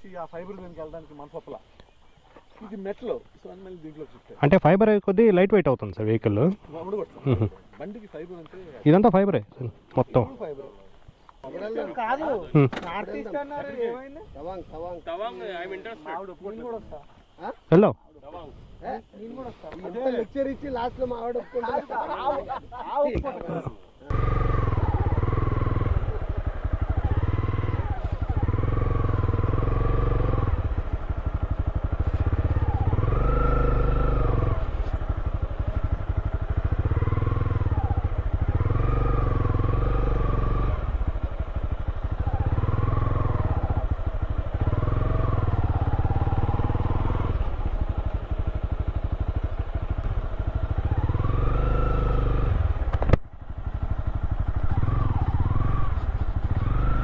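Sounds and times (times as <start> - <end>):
motorcycle engine revving: 0.0 - 4.0, 24.1 - 57.0.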